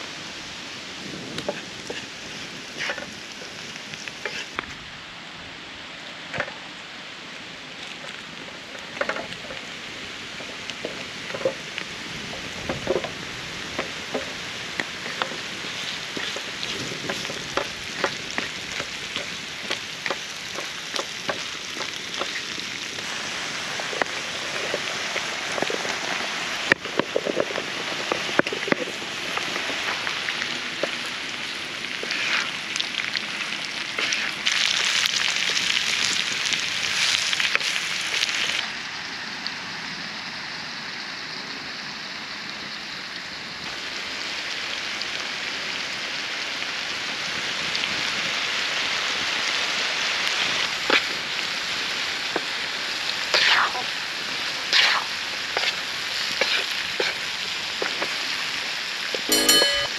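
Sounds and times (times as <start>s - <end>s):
food sizzling in a pan: 0.0s - 4.7s, 8.9s - 38.7s, 43.6s - 59.9s
crackles and pops: 1.0s - 4.8s, 6.3s - 38.6s, 50.0s - 59.3s
stirring clatters: 59.2s - 59.9s.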